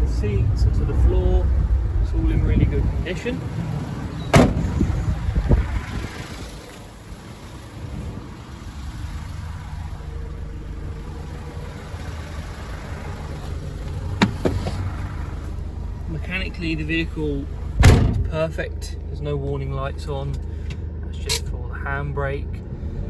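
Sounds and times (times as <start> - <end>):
diesel engine idling: 0.0 - 22.6
sharp knocks: 14.2 - 14.9.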